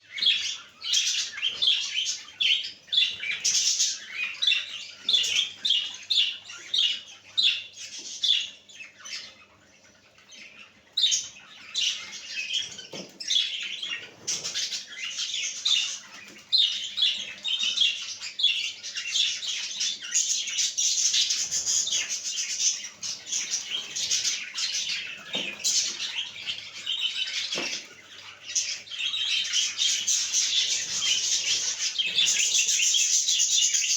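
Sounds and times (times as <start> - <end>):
budgerigars chirping: 0.0 - 33.9.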